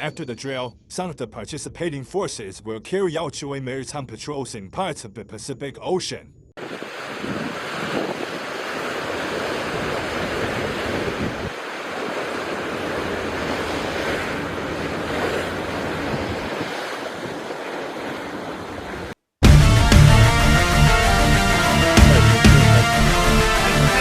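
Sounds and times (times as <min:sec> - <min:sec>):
wind buffeting microphone: 0:06.6 - 0:19.1
open sea rushing: 0:06.6 - 0:24.0.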